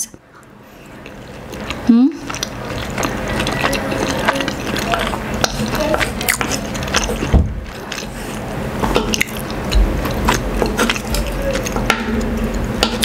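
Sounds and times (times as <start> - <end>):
mouth chewing: 0.8 - 11.9.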